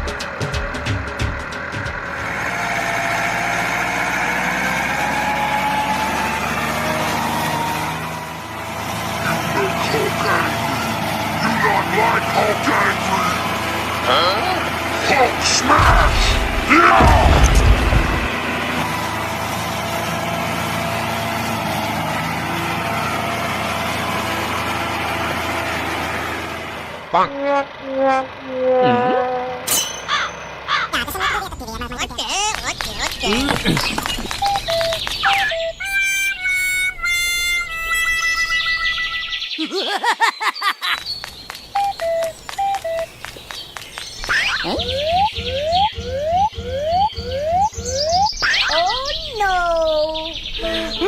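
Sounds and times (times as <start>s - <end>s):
music beat: 33.2s - 38.0s, 41.7s - 48.3s.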